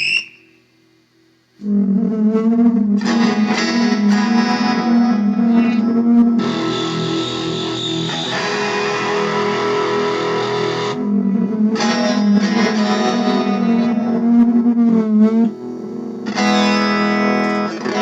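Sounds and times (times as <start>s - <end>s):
amplified electric guitar chords: 1.6s - 18.0s.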